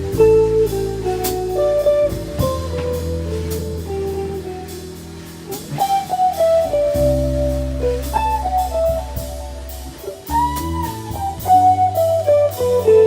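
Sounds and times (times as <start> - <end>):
bass: 0.0 - 13.0
drum kit with cymbal hits: 0.0 - 13.0
electric guitar melody: 0.0 - 13.0.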